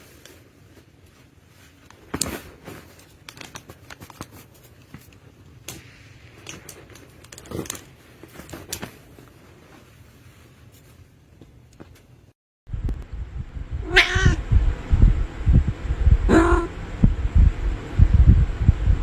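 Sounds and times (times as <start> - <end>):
rustling: 0.0 - 12.3.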